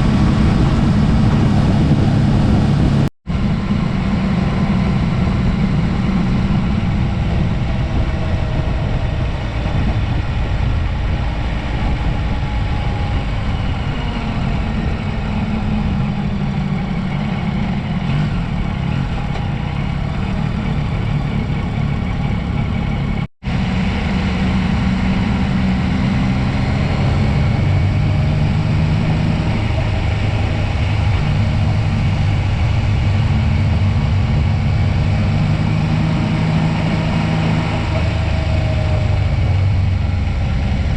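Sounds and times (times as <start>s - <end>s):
motorcycle engine running: 0.0s - 40.9s
road and wind noise: 0.0s - 40.9s.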